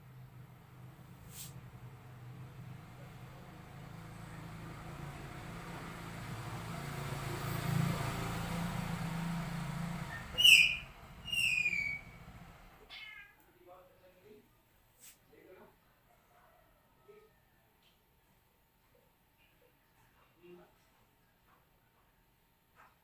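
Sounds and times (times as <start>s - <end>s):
low vehicle-like rumble: 0.0s - 12.8s
cat crying: 12.8s - 13.4s.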